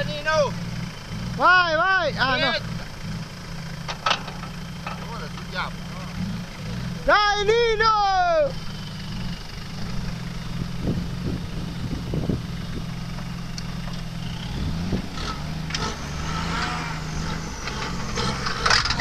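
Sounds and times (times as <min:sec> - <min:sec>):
off-road engines under load: 0:00.0 - 0:19.0.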